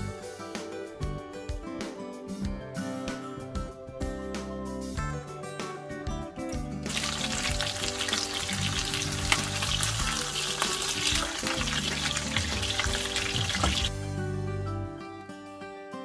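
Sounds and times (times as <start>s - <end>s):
food sizzling in hot oil: 6.9s - 14.0s.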